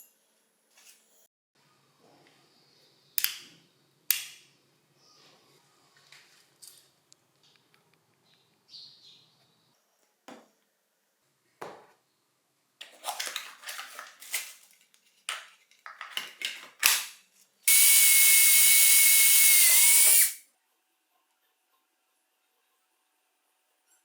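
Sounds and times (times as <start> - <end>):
power drill whining: 17.7 - 20.4.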